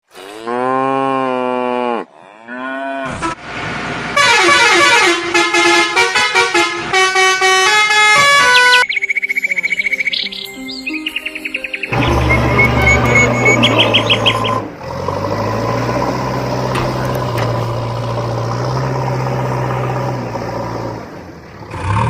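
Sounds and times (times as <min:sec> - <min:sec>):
bright music with quick notes: 0:08.9 - 0:14.3
pitched horn-like call: 0:11.9 - 0:14.7.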